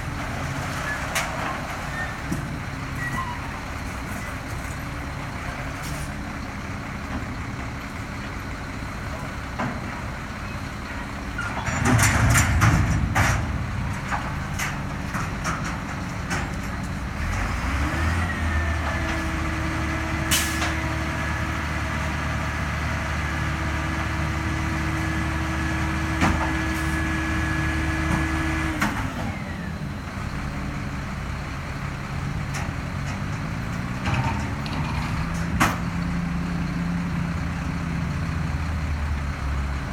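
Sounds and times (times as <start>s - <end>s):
diesel truck engine: 0.0s - 39.9s
hiss and metal clanks: 20.3s - 20.8s.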